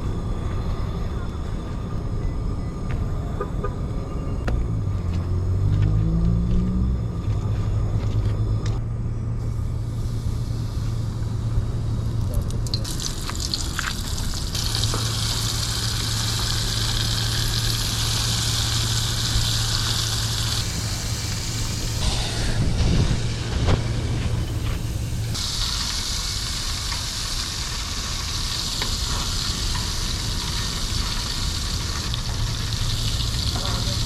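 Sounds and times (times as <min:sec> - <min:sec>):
low hum: 0:00.0 - 0:26.5
rumbling background noise: 0:00.0 - 0:34.0
shrimp sizzling in hot oil: 0:12.7 - 0:22.0, 0:25.3 - 0:34.0.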